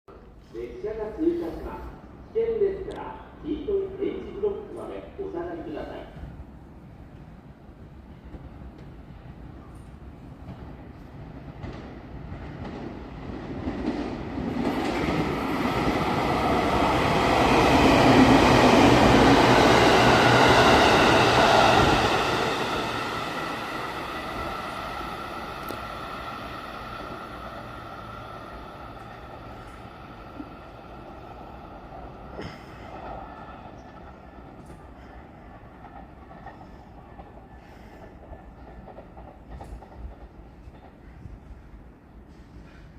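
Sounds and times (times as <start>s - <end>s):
electric train passing: 6.6s - 41.0s
train whine: 12.6s - 42.9s.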